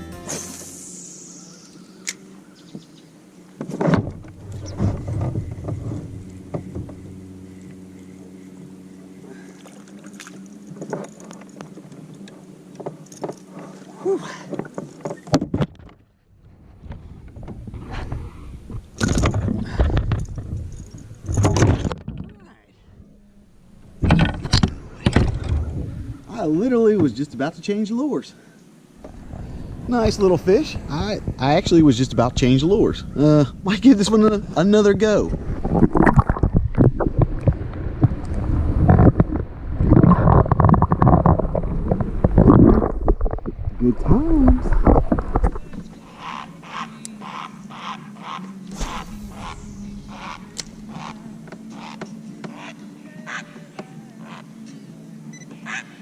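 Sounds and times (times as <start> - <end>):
wind rumbling on microphone: 3.7 - 7.2, 15.5 - 26.5, 29.0 - 46.5, 48.7 - 52.0
handling knocks and rattles: 19.0 - 22.5.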